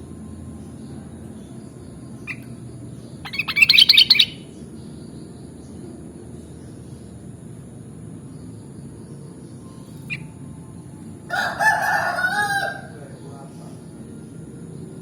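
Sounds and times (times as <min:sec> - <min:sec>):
bird calling: 0:02.2 - 0:04.5.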